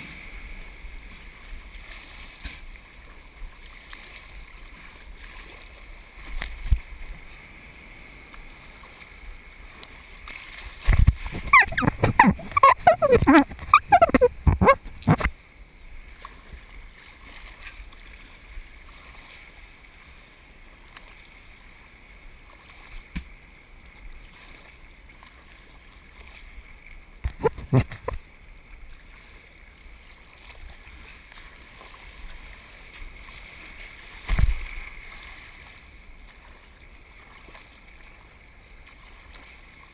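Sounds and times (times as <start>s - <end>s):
water washing around kayak: 0.0s - 39.9s
water splashing: 8.5s - 15.3s, 27.2s - 28.2s.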